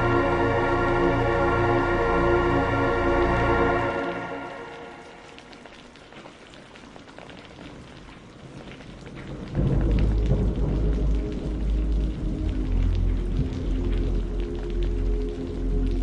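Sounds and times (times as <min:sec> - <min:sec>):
steady rain pattering: 0:00.0 - 0:16.0
loud low thunder rumble: 0:09.3 - 0:14.4.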